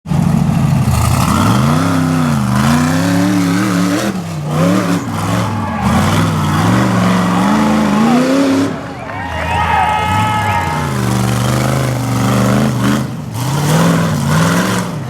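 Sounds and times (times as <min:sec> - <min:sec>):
buggy engine revving hard: 0:00.1 - 0:15.0.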